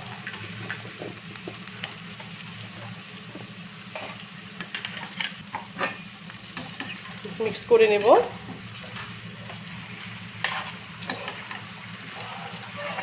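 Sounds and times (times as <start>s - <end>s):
vegetables sizzling in hot oil: 0.0s - 13.0s
stirring scrapes and knocks in pan: 8.8s - 13.0s.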